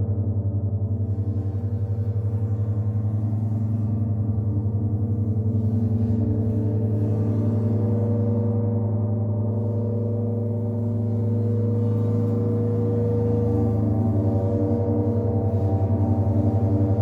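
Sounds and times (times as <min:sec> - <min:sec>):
gong droning: 0:09.5 - 0:17.0.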